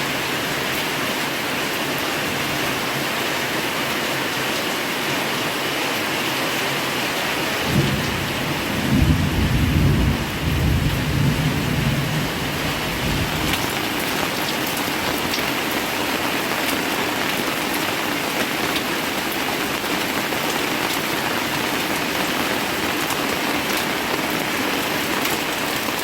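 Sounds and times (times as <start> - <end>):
heavy rain pouring: 0.0 - 26.0
thunder rumbling: 7.6 - 15.0.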